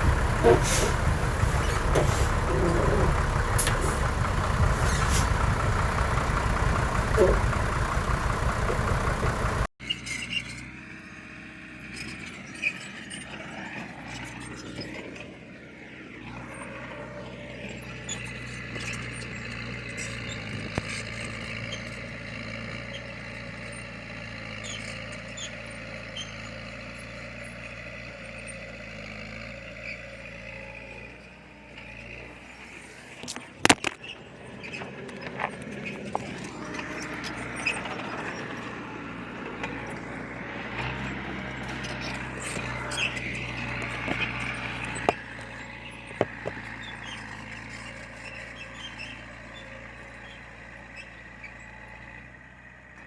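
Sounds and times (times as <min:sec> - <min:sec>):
heavy machinery diesel engine running: 0:00.0 - 0:09.7, 0:31.4 - 0:50.9
loud engine: 0:00.0 - 0:53.0.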